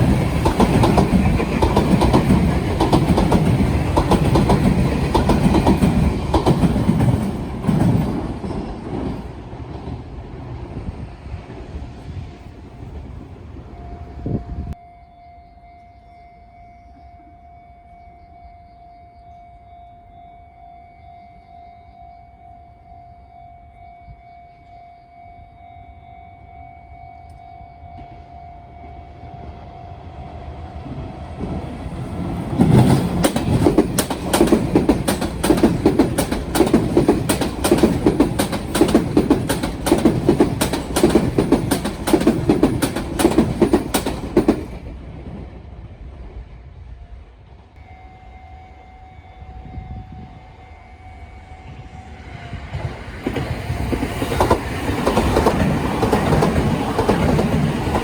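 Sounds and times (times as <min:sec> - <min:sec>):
train wheels clacking over points: 0:00.0 - 0:09.9, 0:32.2 - 0:44.9, 0:52.7 - 0:58.0
crossing warning tone: 0:00.0 - 0:10.0, 0:12.8 - 0:44.9, 0:47.8 - 0:58.0
train rail noise: 0:00.0 - 0:14.8, 0:23.6 - 0:58.0.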